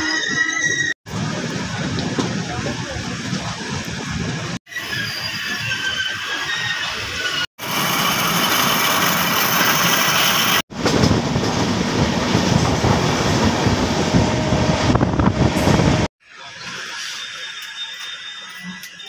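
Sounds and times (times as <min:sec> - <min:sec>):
train wheels rushing on rails: 0:06.9 - 0:16.1.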